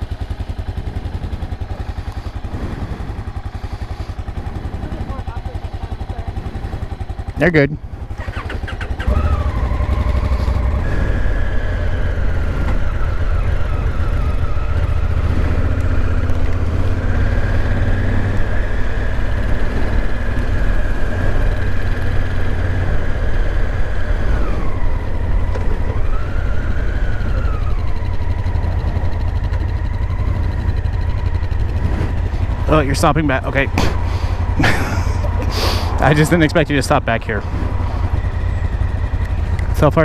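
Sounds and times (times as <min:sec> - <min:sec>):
motorcycle engine and wind rumble: 0:00.0 - 0:40.0
thin whining tone: 0:08.1 - 0:16.2, 0:17.0 - 0:40.0.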